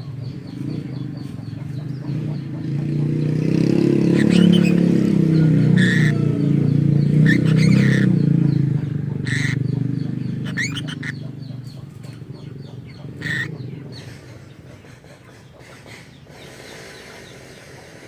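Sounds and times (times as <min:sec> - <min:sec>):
lovebird chirping: 0:00.0 - 0:14.0
low engine rumble: 0:00.0 - 0:18.0.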